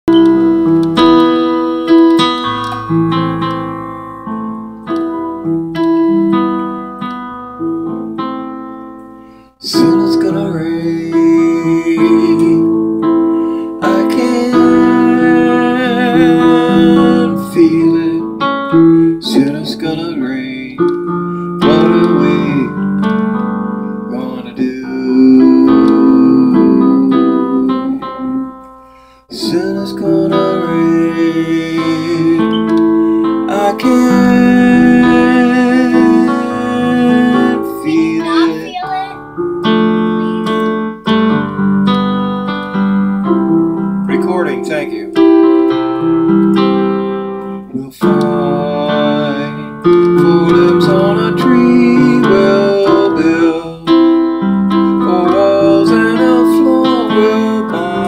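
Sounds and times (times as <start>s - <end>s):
piano chords: 0.0s - 58.0s.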